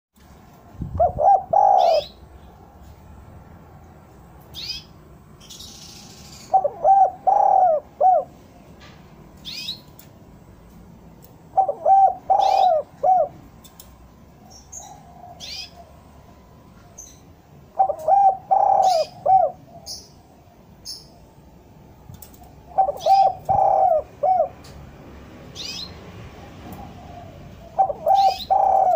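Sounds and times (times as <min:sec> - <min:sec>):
dove cooing: 0:00.9 - 0:02.2, 0:06.4 - 0:08.4, 0:11.5 - 0:13.5, 0:17.7 - 0:20.2, 0:22.2 - 0:24.7, 0:26.4 - 0:28.9
small bird chirping: 0:04.4 - 0:07.7, 0:09.4 - 0:10.0, 0:16.8 - 0:20.2, 0:20.8 - 0:21.2.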